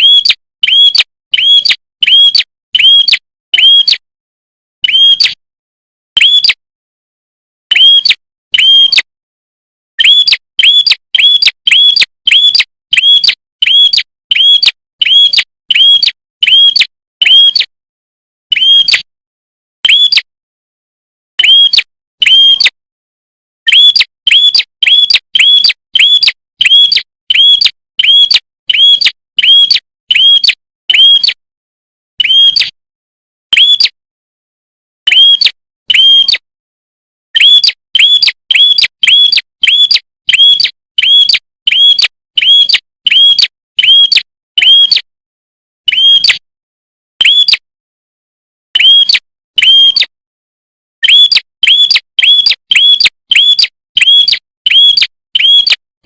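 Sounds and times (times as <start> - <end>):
songbird sharp chirps: 10.0 - 17.7, 37.4 - 44.0, 51.0 - 55.8.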